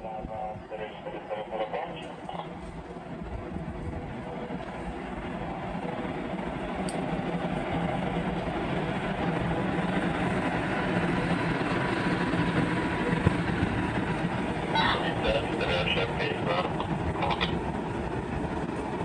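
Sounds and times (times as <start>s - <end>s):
train running on tracks: 0.0s - 19.0s.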